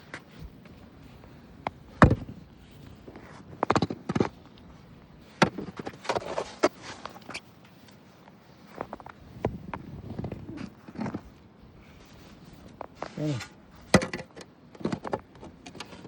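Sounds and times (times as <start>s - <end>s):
scraping snow: 2.5s - 13.9s.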